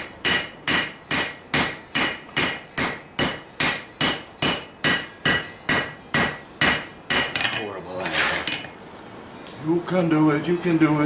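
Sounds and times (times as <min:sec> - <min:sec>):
hammer striking steel on anvil: 0:00.0 - 0:07.7.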